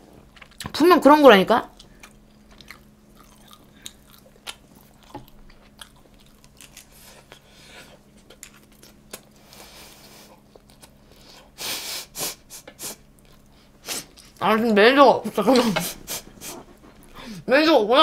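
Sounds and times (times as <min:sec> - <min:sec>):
person chewing food: 0:00.1 - 0:00.7, 0:01.7 - 0:11.6, 0:12.7 - 0:14.4.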